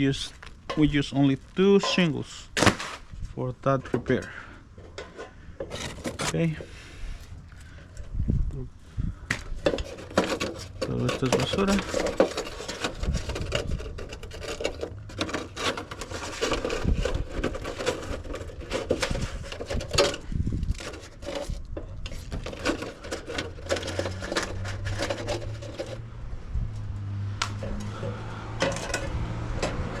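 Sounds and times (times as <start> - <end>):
roofing scraps rustling and knocking: 4.8 - 6.8, 9.3 - 26.1.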